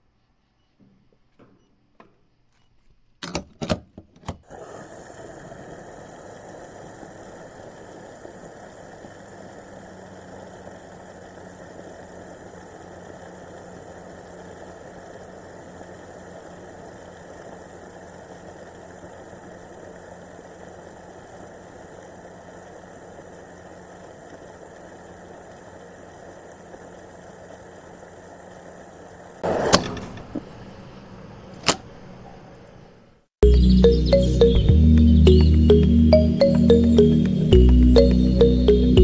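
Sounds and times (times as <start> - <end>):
small motor humming: 4.5 - 28.5
sharp click: 31.6 - 32.0.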